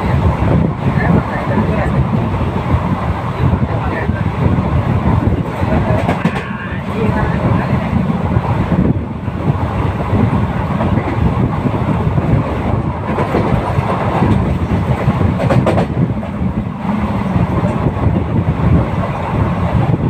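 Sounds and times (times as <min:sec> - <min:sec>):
train rumbling on rails: 0:00.0 - 0:20.0
sharp clicks of train wheels: 0:05.2 - 0:06.6, 0:09.6 - 0:19.9.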